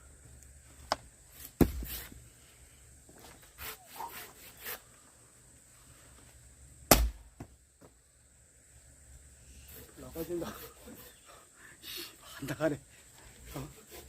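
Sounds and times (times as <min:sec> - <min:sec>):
axe cracking log: 0:06.9 - 0:07.5.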